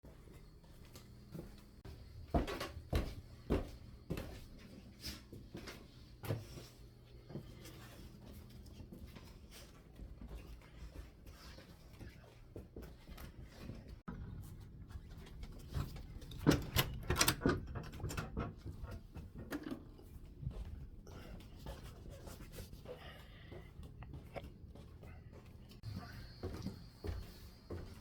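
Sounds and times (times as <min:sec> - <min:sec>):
steady low hum: 0:00.1 - 0:28.0.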